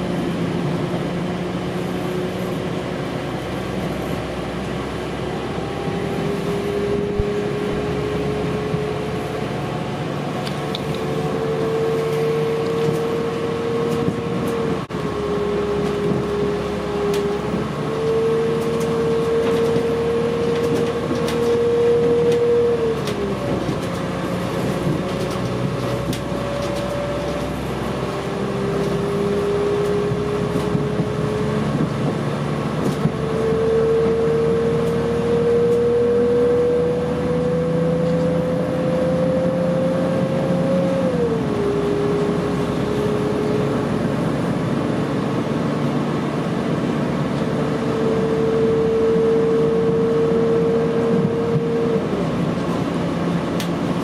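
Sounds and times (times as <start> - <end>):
train drive whine: 0.0 - 54.0
train interior rumble: 0.0 - 54.0.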